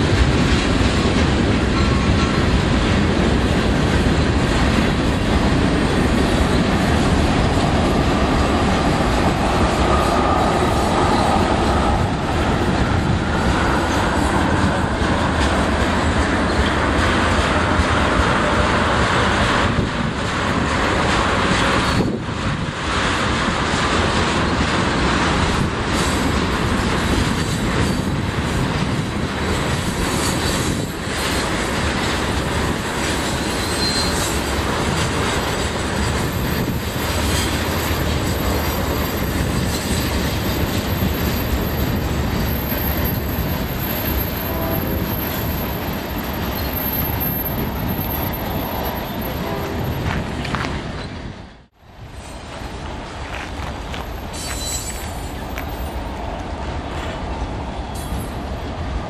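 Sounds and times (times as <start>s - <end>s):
steel wheels rumbling on rail: 0.0s - 59.0s
faint wheel squeal: 33.6s - 34.3s, 54.3s - 55.9s.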